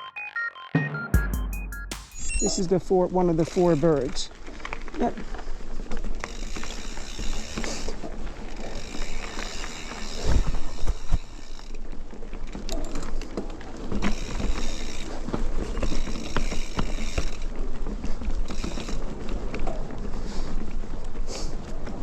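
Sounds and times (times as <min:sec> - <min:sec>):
bike rattling on rough ground: 0:02.6 - 0:22.0
bicycle freehub ratchet buzzing: 0:03.3 - 0:04.2, 0:06.2 - 0:11.8, 0:14.0 - 0:15.2, 0:15.8 - 0:17.5, 0:18.4 - 0:19.1.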